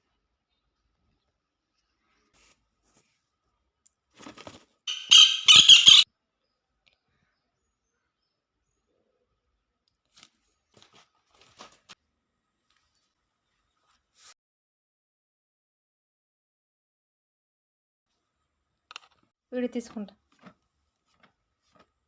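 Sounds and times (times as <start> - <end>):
woodpecker rattling call: 4.9 - 6.0.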